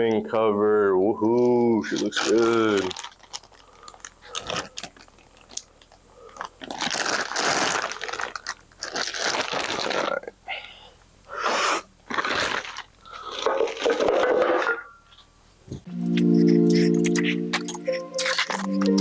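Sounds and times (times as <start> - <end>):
packaging crinkling and rustling: 1.2 - 10.3, 12.1 - 14.6.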